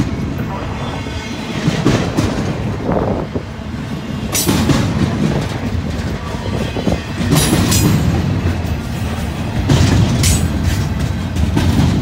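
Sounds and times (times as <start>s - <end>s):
heavy train rumble: 0.0s - 12.0s
wheels clacking over rails: 0.0s - 12.0s.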